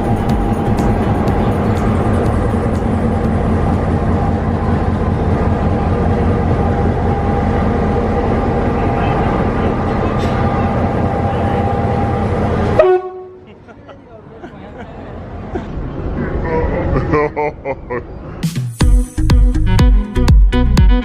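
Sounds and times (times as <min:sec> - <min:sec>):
vehicle engine hum: 0:00.0 - 0:18.5.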